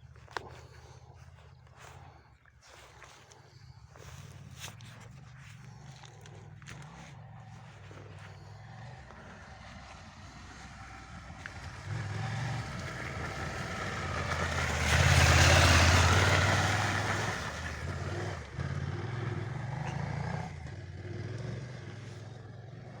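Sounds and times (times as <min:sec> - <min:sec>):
motorcycle engine passing by: 0:00.0 - 0:23.0.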